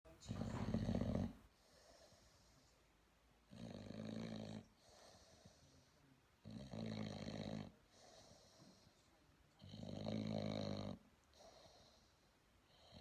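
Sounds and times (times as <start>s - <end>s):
puppy snoring: 0.1s - 2.6s, 3.4s - 9.0s, 9.6s - 13.0s
soft breathing: 0.1s - 3.1s, 4.6s - 6.3s, 7.7s - 9.5s, 11.2s - 13.0s.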